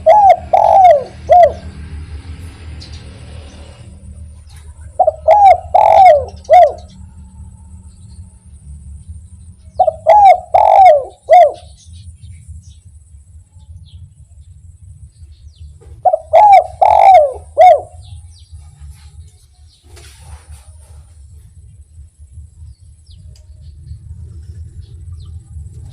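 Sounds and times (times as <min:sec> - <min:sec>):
dove cooing: 0:00.0 - 0:02.0, 0:04.6 - 0:07.2, 0:09.8 - 0:11.8, 0:15.8 - 0:19.2
low steady hum: 0:00.0 - 0:25.9.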